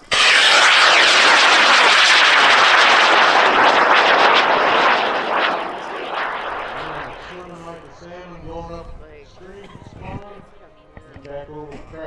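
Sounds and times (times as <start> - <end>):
rocket motor roaring: 0.0 - 8.1.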